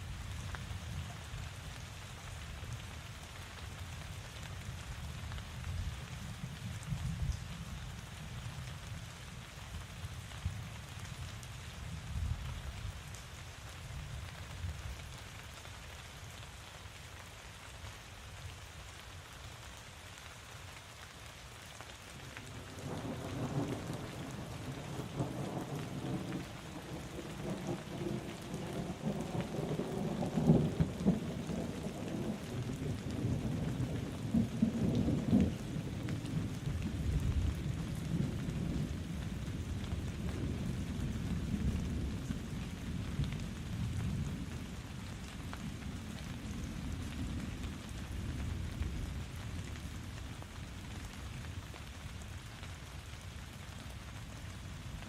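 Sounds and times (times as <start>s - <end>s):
steady rainfall: 0.0s - 55.0s
thunder rumbling: 22.7s - 44.8s.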